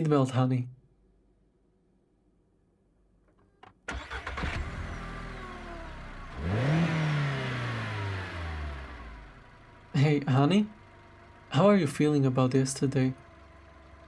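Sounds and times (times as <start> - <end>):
car engine starting and revving: 3.9 - 14.0.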